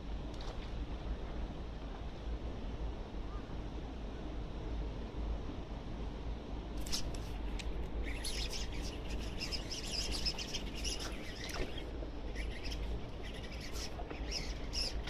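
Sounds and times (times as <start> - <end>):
low steady rumble: 0.0 - 15.0
small birds chirping and tweeting: 7.9 - 15.0.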